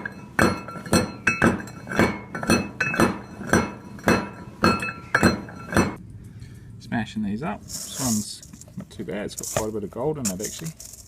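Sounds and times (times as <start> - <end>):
hammer striking metal with ring: 0.0 - 6.0.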